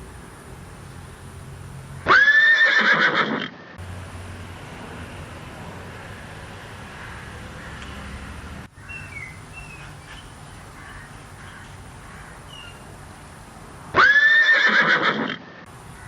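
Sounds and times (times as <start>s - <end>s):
horse whinnying: 2.1s - 3.6s, 14.0s - 15.4s.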